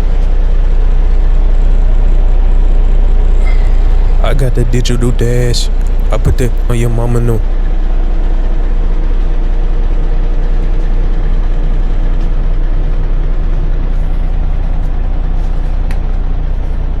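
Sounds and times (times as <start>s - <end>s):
diesel truck engine idling: 3.4s - 7.4s.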